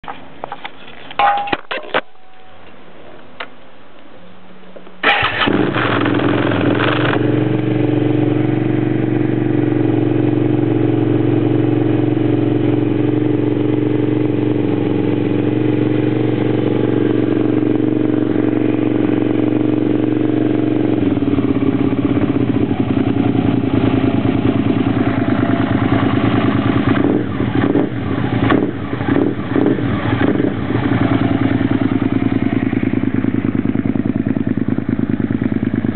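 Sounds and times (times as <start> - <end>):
motorcycle engine idling and revving: 5.0 - 35.9.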